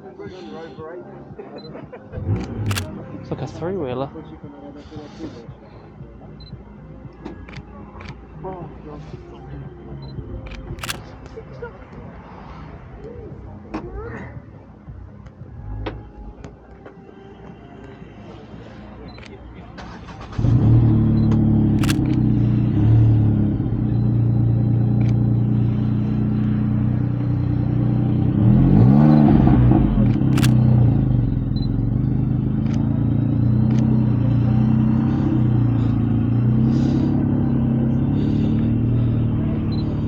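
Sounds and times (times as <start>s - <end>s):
car engine idling and revving: 2.1s - 4.4s, 5.0s - 16.5s, 18.4s - 40.0s
sharp clicks: 2.3s - 2.9s, 10.4s - 11.1s, 20.1s - 22.4s, 30.0s - 31.8s, 32.6s - 33.0s, 33.6s - 34.0s.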